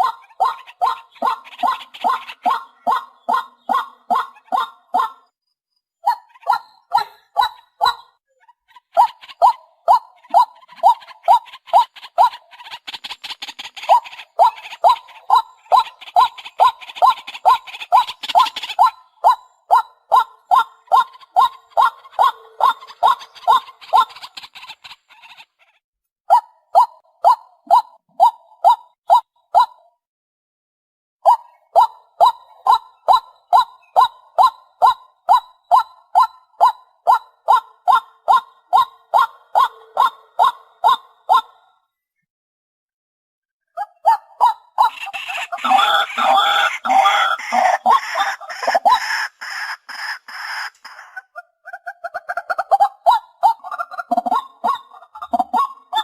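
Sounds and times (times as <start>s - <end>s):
waterhen calling: 6.1s - 25.7s, 44.1s - 52.8s.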